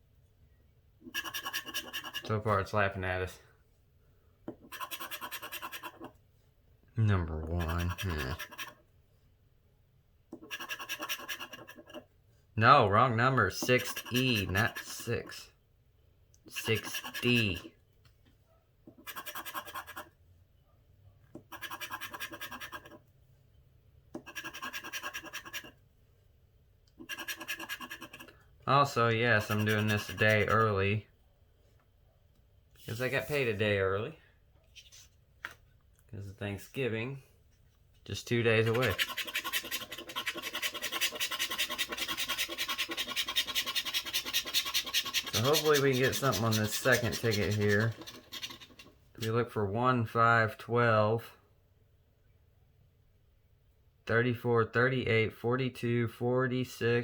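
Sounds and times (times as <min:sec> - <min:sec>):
coin scraping a scratch card: 0:01.1 - 0:02.3, 0:04.6 - 0:06.1, 0:07.6 - 0:08.8, 0:10.4 - 0:12.0, 0:13.6 - 0:15.1, 0:16.6 - 0:17.6, 0:19.0 - 0:20.1, 0:21.4 - 0:23.0, 0:24.2 - 0:25.8, 0:27.0 - 0:28.3, 0:29.4 - 0:30.7, 0:38.5 - 0:49.0.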